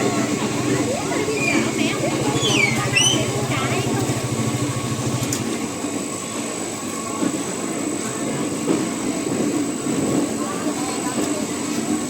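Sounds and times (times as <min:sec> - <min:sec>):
pulsing engine hum: 0:00.0 - 0:06.0
busy market ambience: 0:00.0 - 0:12.0.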